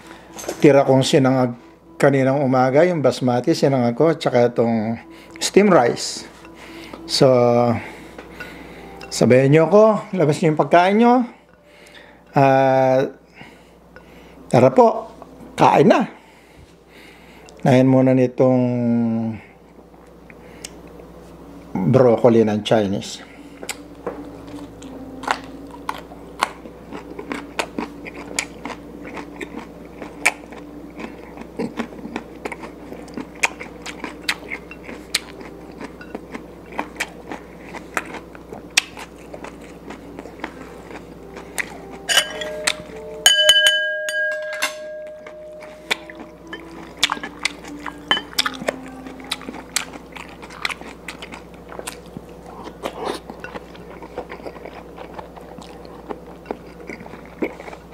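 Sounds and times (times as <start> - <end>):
person chewing food: 23.6 - 43.3, 44.2 - 57.9
sharp clink: 42.1 - 45.7.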